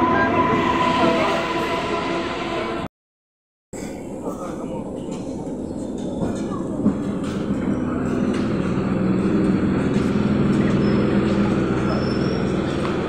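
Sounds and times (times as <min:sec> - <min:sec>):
train braking to a stop: 0:00.0 - 0:02.9, 0:07.8 - 0:13.0.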